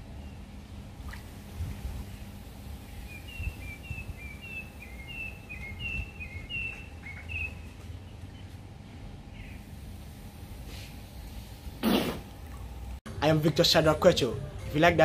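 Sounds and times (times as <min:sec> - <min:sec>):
low outdoor rumble: 0:00.0 - 0:14.7
bird chirping: 0:02.2 - 0:08.6.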